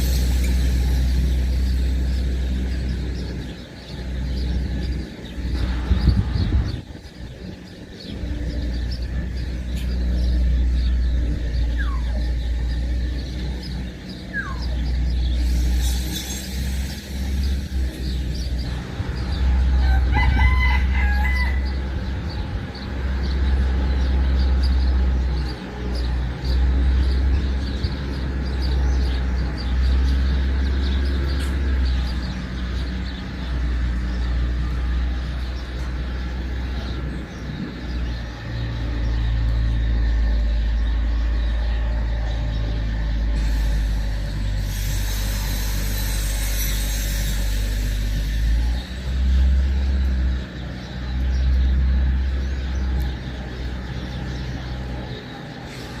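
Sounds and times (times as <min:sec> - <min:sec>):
loud low rumble: 0:00.0 - 0:56.0
rooster crowing: 0:19.6 - 0:22.0.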